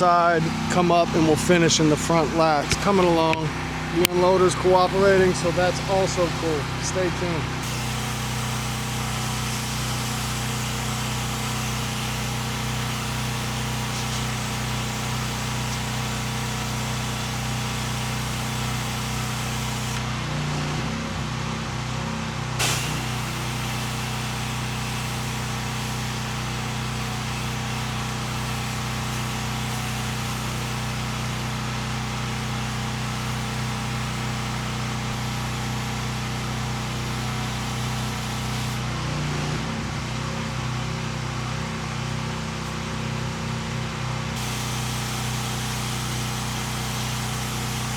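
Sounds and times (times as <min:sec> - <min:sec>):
pressure washer engine: 0:00.0 - 0:47.9
water spray hiss: 0:05.0 - 0:20.0, 0:22.6 - 0:31.4, 0:44.4 - 0:47.9.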